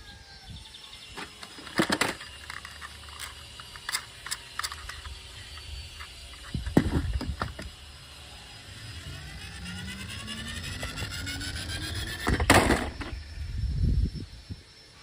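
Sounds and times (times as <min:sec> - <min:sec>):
toy car whine rising: 0:00.0 - 0:15.0
plastic toy cars clicking: 0:01.2 - 0:07.7.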